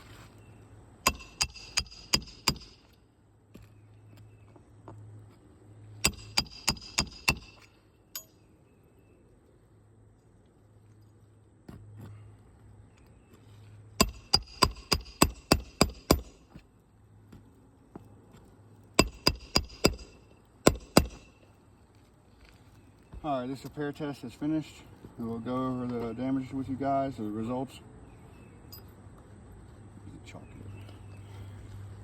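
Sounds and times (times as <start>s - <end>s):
hammer striking nails into shingles: 1.0s - 3.0s, 6.0s - 8.3s, 14.0s - 16.6s, 19.0s - 21.4s.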